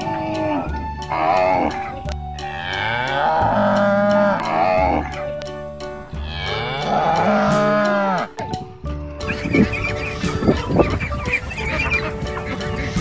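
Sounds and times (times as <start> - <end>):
cattle mooing: 0.0 - 5.2, 6.2 - 8.3.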